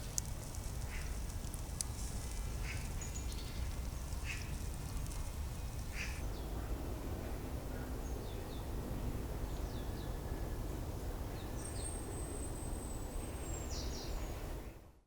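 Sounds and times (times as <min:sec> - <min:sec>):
low outdoor rumble: 0:00.0 - 0:15.0
birds chirping: 0:02.3 - 0:06.6.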